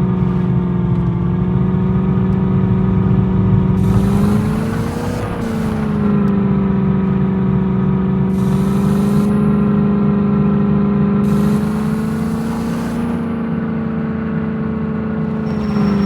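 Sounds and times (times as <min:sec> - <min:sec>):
car engine humming: 0:00.0 - 0:16.0.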